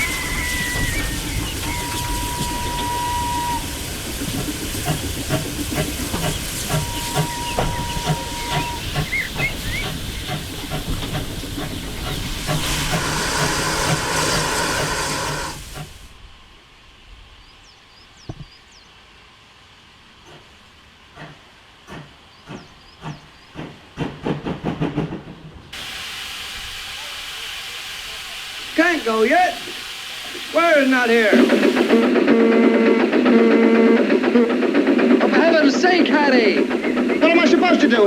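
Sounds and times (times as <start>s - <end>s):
high steam whistle: 0.0s - 10.4s, 11.1s - 16.0s, 25.8s - 38.0s
birds chirping: 0.0s - 15.6s
distant locomotive pulling away: 0.0s - 38.0s
steam locomotive hiss and exhaust beats: 0.0s - 38.0s.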